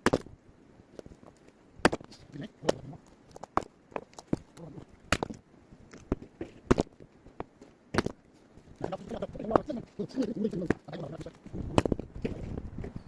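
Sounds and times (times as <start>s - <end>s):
blade striking wood: 0.0s - 0.3s, 1.8s - 2.1s, 5.1s - 5.4s, 6.0s - 8.2s.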